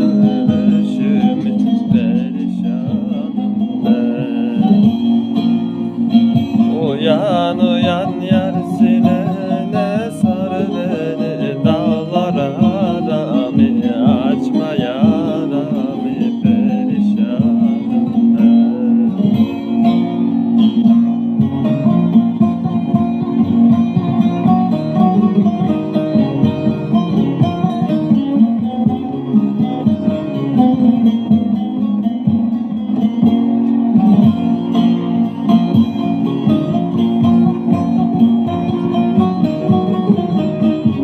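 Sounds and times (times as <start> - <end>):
plucked string instrument folk music: 0.0 - 41.0.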